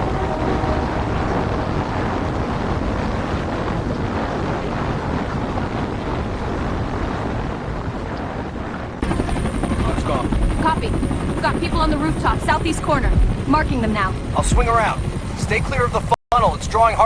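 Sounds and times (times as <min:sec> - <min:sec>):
strong wind rushing: 0:00.0 - 0:17.0
wind buffeting microphone: 0:00.0 - 0:17.0.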